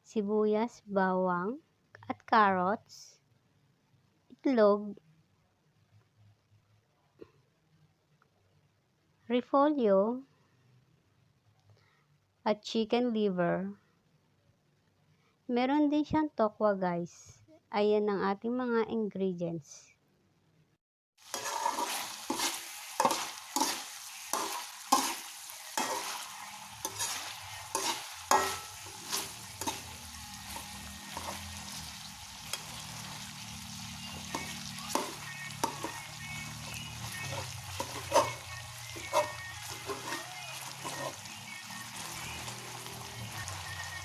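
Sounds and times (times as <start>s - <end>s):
food sizzling in a pan: 21.2s - 44.0s.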